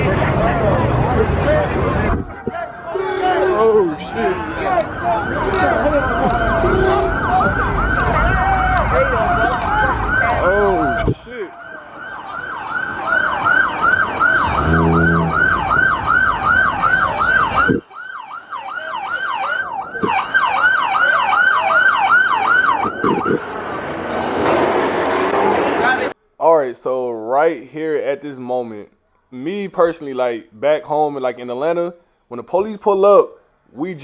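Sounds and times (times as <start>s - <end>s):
police siren yelping: 4.0s - 23.5s
horn honk: 14.4s - 16.0s
heavy low rumble: 14.5s - 16.5s.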